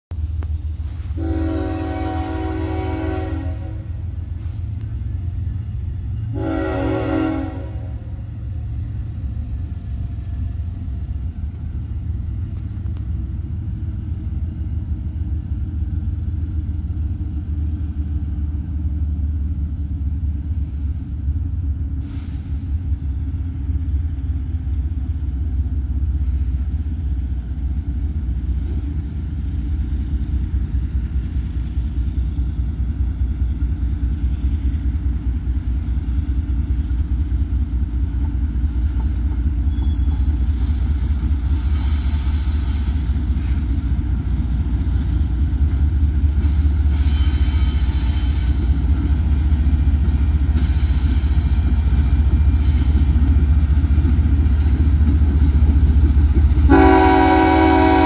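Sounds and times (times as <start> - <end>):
train rumble: 0.1 - 58.0
locomotive air horn: 1.1 - 4.6, 6.2 - 8.2, 46.9 - 48.6, 56.7 - 58.0.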